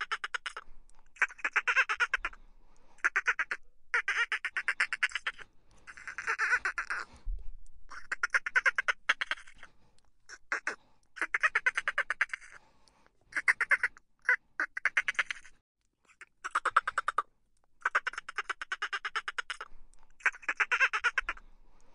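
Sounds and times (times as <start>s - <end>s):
dolphins chattering: 3.0s - 7.1s.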